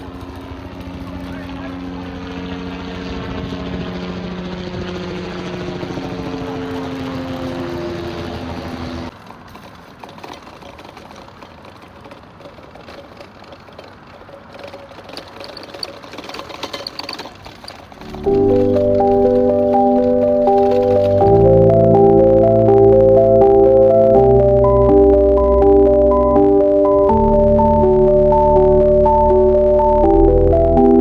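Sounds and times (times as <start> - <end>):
outdoor noise: 0.0 - 30.2
engine humming: 0.0 - 31.0
music: 18.1 - 31.0.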